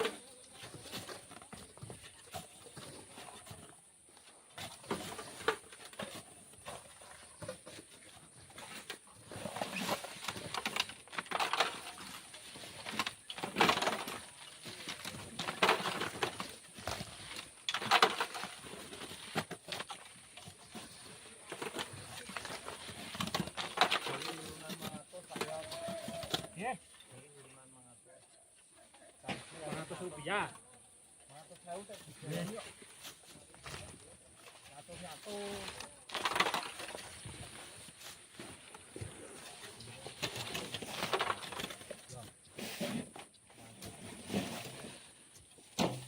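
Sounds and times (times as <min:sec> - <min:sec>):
shovel scraping and tossing sand: 0:42.5 - 0:45.2.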